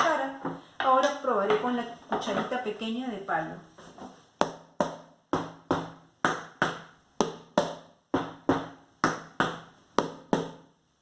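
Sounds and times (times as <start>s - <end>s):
wooden spoon knocking: 0.0s - 2.7s.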